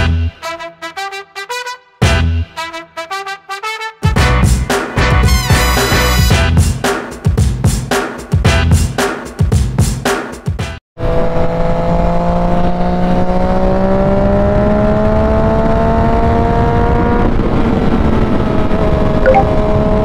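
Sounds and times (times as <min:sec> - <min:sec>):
motorcycle engine accelerating: 0:11.0 - 0:20.0.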